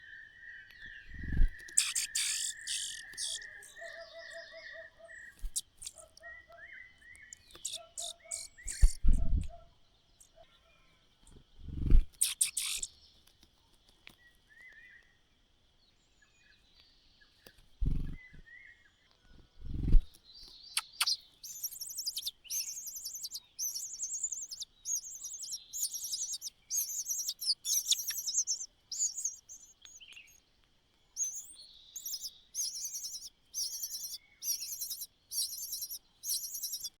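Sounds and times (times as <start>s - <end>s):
small birds chirping: 0.0s - 37.0s
rapid high-pitched chirps: 1.7s - 3.6s, 7.4s - 9.0s, 12.2s - 12.9s, 20.8s - 30.4s, 31.2s - 37.0s.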